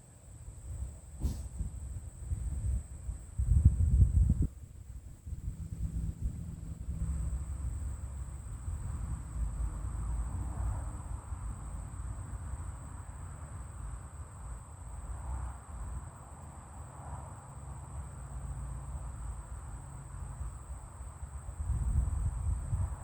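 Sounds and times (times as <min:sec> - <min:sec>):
wind rumble on microphone: 0:00.6 - 0:16.1, 0:20.2 - 0:23.0.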